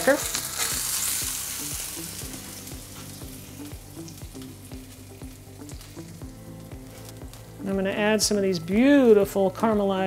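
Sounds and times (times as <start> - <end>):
patty sizzling on griddle: 0.0 - 7.7
background music with beat: 0.0 - 10.0.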